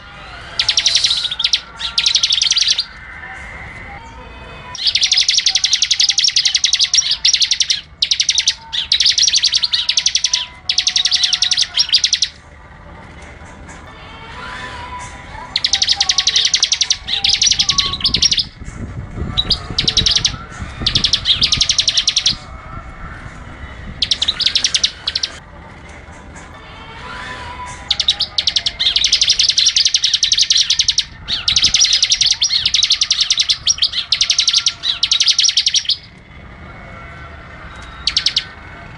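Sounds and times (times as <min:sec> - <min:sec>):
songbird trilling: 0:00.5 - 0:03.0, 0:04.8 - 0:12.4, 0:15.5 - 0:18.6, 0:19.3 - 0:22.6, 0:24.0 - 0:25.4, 0:27.8 - 0:36.2, 0:37.8 - 0:38.6.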